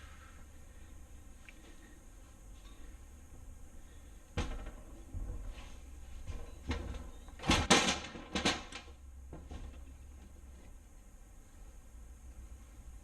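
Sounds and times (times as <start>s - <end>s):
knocks and clunks of tools: 4.4s - 5.5s.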